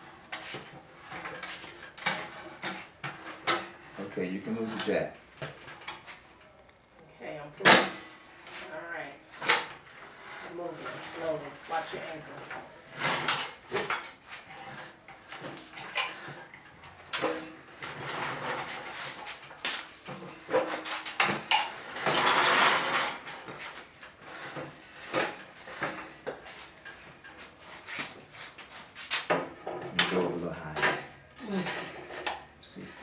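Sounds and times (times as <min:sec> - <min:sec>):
floor jack being moved: 0:09.3 - 0:32.4.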